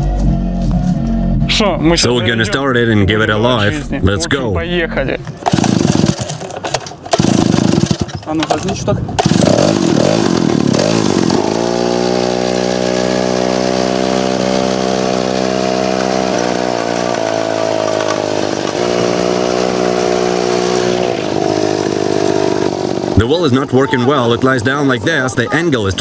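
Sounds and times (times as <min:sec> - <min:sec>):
two-stroke engine running: 0:05.3 - 0:08.2, 0:09.2 - 0:25.6.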